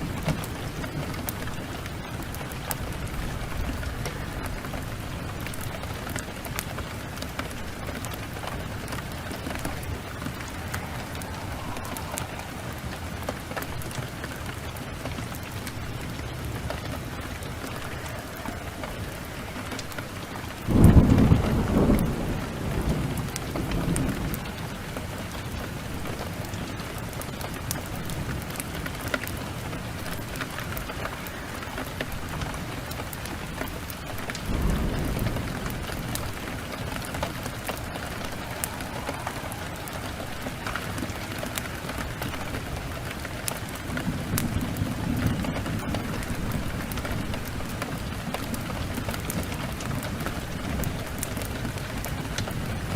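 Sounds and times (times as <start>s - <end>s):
fireplace fire crackling: 0.0s - 52.9s
steady rain: 0.0s - 52.9s
thunder rumbling: 0.0s - 52.9s.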